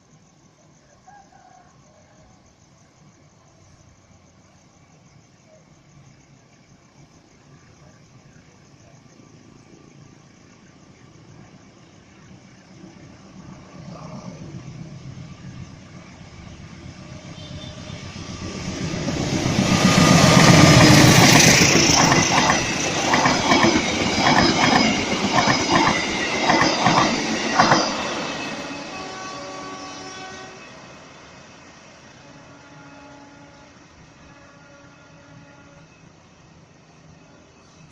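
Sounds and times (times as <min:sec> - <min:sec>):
passenger train passing: 0:02.9 - 0:37.9
train wheels clicking over rail joints: 0:18.1 - 0:28.4.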